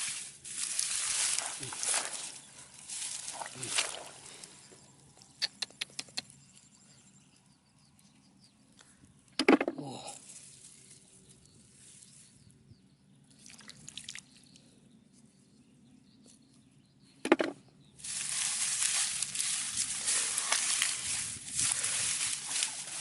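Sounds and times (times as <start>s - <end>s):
muddy water sloshing and splashing: 0.0s - 4.7s, 13.3s - 14.6s, 18.0s - 23.0s
person exclaiming: 9.8s - 10.2s.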